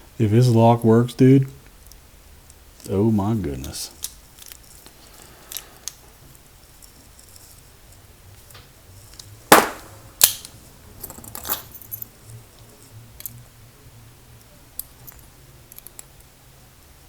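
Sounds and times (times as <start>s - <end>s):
padlock clacking: 10.2s - 12.0s
keys jingling: 11.0s - 12.2s.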